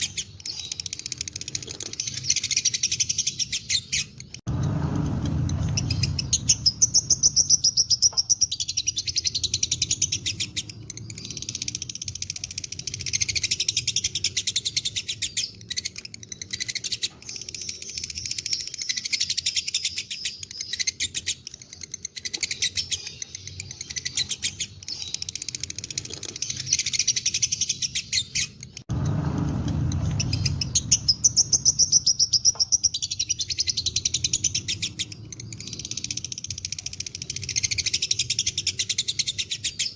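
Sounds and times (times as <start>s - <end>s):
lovebird rattling chatter: 0.0s - 7.7s
low rumble: 4.5s - 7.6s.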